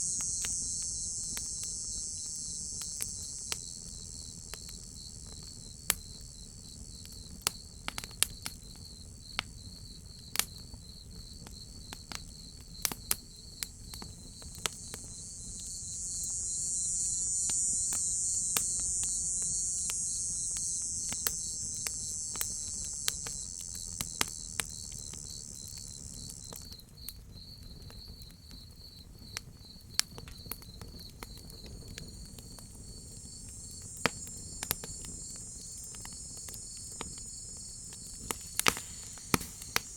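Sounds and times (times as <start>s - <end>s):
high insect drone: 0.0s - 27.8s, 30.6s - 39.9s
crickets chirping: 0.0s - 39.9s
wood fire crackling: 12.8s - 26.6s, 30.0s - 39.9s.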